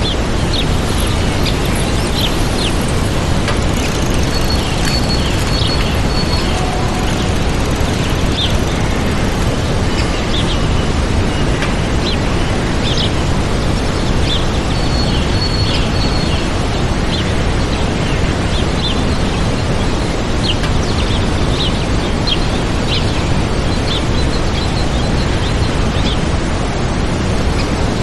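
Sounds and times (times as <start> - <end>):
small birds chirping: 0.0 - 12.2
waterfall rushing: 0.0 - 15.4.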